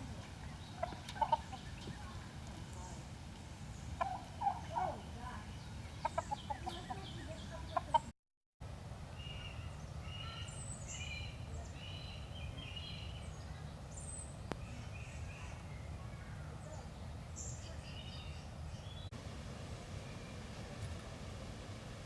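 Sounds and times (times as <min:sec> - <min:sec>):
birds chirping and twittering: 0:00.0 - 0:08.1, 0:09.2 - 0:21.0
fowl clucking and gobbling: 0:00.7 - 0:01.9, 0:04.0 - 0:05.0, 0:06.0 - 0:08.1.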